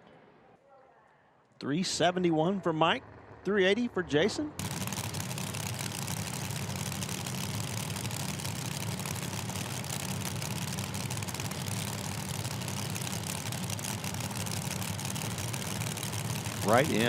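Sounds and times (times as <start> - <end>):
race car engine idling: 4.6 - 17.0.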